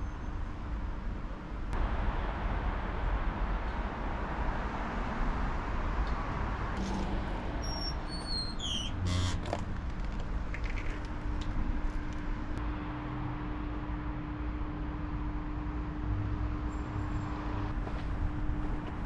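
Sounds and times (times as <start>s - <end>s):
distant city traffic rumble: 0.0s - 19.0s
high descending chirps: 6.8s - 9.0s.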